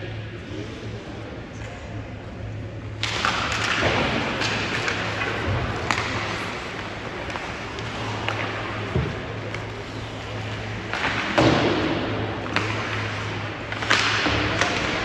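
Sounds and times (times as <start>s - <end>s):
steady low hum: 0.0s - 15.0s
skates scraping ice: 3.0s - 15.0s
sticks and puck clacking: 3.0s - 15.0s.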